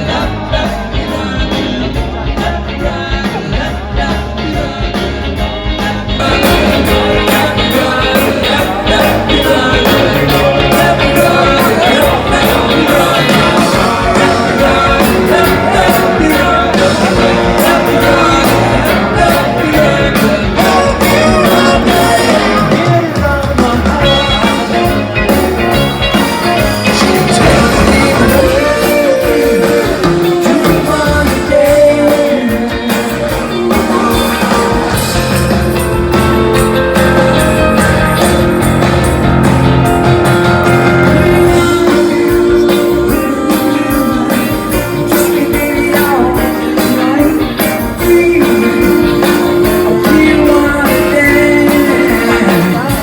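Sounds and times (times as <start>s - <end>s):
bass guitar: 0.0s - 53.0s
drums: 0.0s - 53.0s
electric guitar: 0.0s - 53.0s
person singing: 0.0s - 53.0s.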